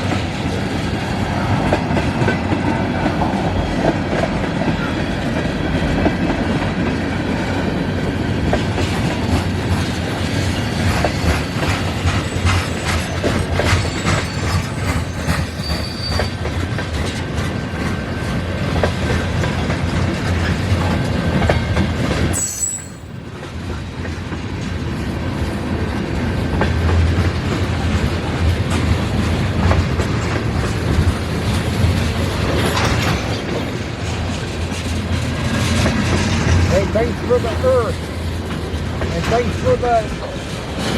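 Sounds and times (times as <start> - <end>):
wheels clacking over rail joints: 0.0 - 40.9
thin wheel squeal: 13.7 - 16.4.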